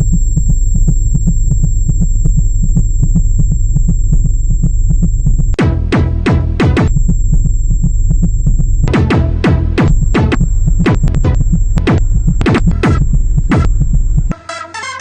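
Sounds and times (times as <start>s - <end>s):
rapid ticking: 0.0s - 14.4s
steady high whine: 0.0s - 14.4s
loud electrical buzz: 5.5s - 14.4s
falling electronic tones: 5.6s - 15.0s.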